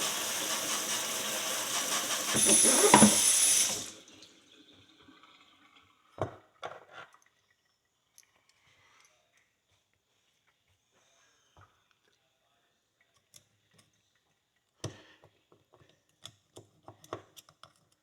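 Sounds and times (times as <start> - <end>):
water running from a tap: 0.0 - 6.2.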